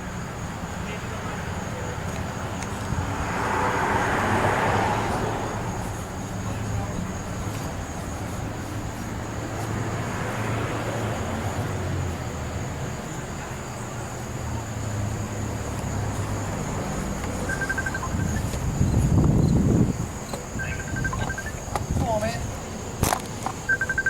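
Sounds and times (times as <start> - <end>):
insects chirring: 0.0 - 24.0
rapid high beeps: 17.5 - 18.5, 20.6 - 21.7, 23.7 - 24.0.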